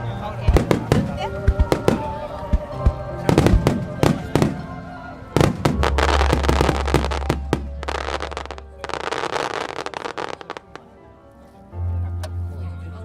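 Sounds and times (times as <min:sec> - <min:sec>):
firework crackle: 0:00.5 - 0:04.8, 0:05.4 - 0:10.9.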